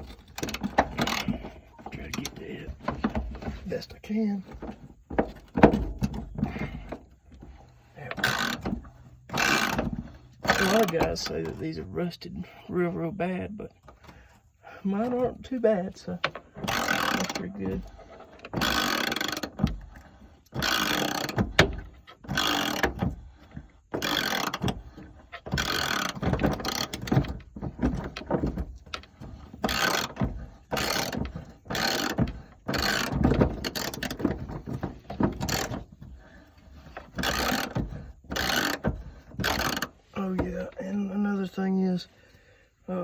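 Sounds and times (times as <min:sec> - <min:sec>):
hand ratchet clicking: 0:00.0 - 0:01.4, 0:08.1 - 0:11.3, 0:16.2 - 0:35.9, 0:36.7 - 0:40.0.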